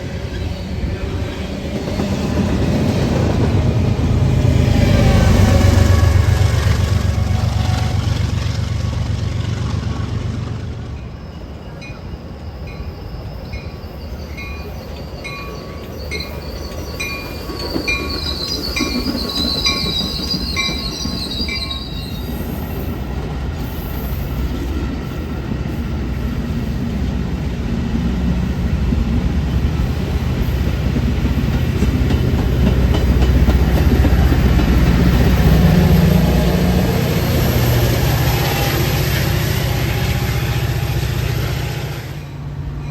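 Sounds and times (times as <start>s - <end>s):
wheels squealing on rails: 0.0s - 28.8s, 29.4s - 42.9s
heavy train rumble: 0.0s - 42.9s
train bell ringing: 11.0s - 22.4s, 42.2s - 42.9s.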